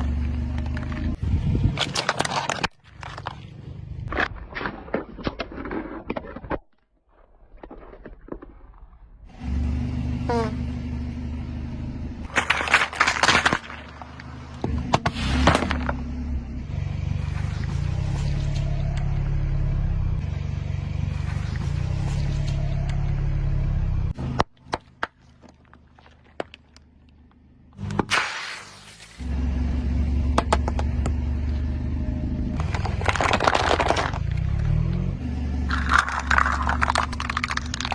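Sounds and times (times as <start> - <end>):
car engine running: 0.0 - 4.3, 9.3 - 28.1, 28.9 - 37.9
tyre crushing objects: 12.3 - 16.0, 32.6 - 35.0.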